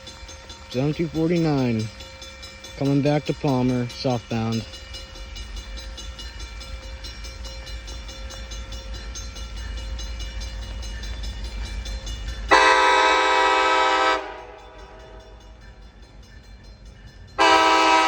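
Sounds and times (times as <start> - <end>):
locomotive air horn blast: 12.5 - 14.6, 17.4 - 18.0.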